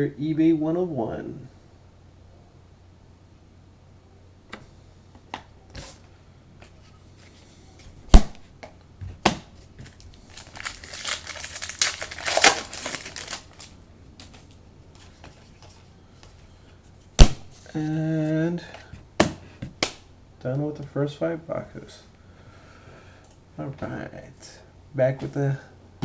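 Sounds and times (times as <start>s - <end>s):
packaging crinkling and rustling: 9.6s - 15.9s.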